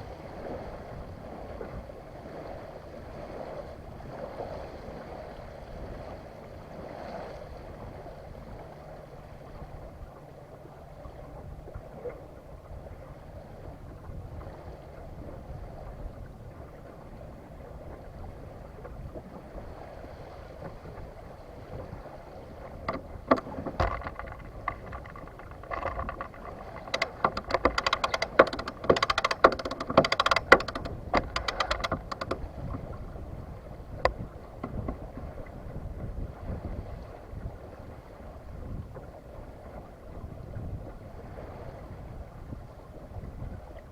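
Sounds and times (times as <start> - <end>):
water wash and wind: 0.0 - 43.9
boat gear clicking and rattling: 22.5 - 35.5.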